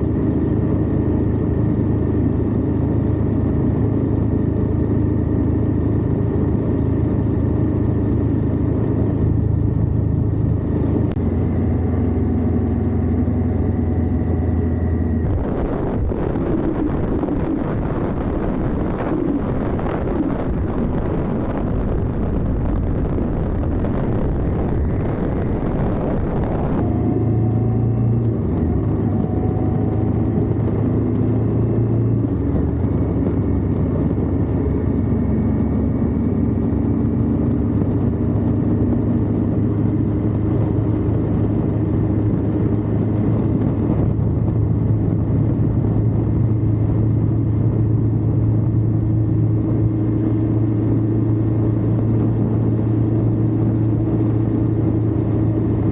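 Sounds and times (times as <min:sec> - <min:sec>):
motorcycle engine running: 0:00.0 - 0:55.9
wind rush on microphone: 0:00.0 - 0:55.9.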